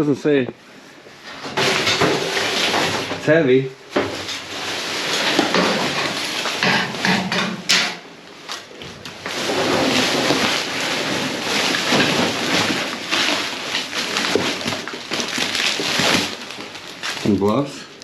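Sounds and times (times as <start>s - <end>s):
packaging rustling and crinkling: 1.5s - 3.3s, 3.9s - 7.2s, 8.3s - 18.0s.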